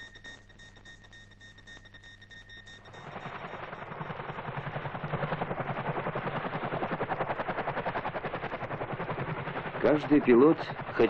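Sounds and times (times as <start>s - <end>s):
helicopter rotor beating: 0.0s - 11.0s.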